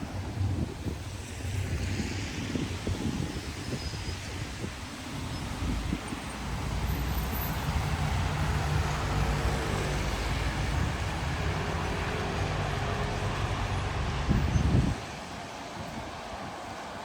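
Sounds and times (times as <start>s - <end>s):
low vehicle rumble: 5.6s - 15.0s.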